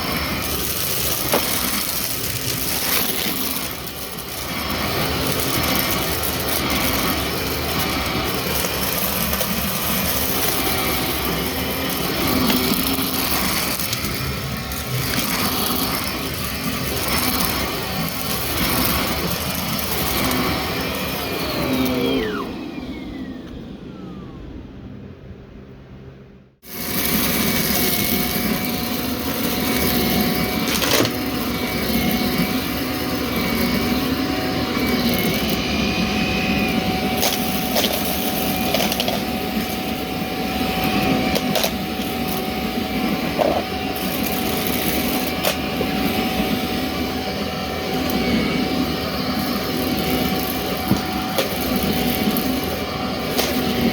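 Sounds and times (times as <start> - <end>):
vacuum motor spinning down: 0.0 - 25.3, 26.6 - 53.9
vacuum cleaner motor whine: 0.0 - 25.9, 26.6 - 53.9.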